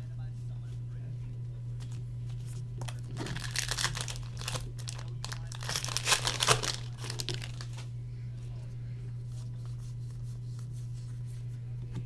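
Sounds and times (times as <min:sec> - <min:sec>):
foil wrapper crinkling and tearing: 0:01.9 - 0:07.9.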